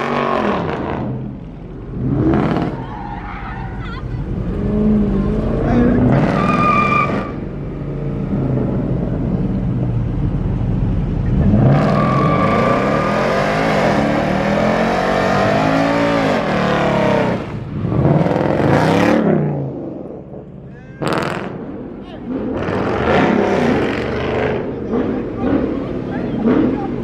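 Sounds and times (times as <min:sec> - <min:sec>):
car engine revving: 0:00.0 - 0:03.0, 0:04.2 - 0:27.0
tyres squealing: 0:05.7 - 0:07.4.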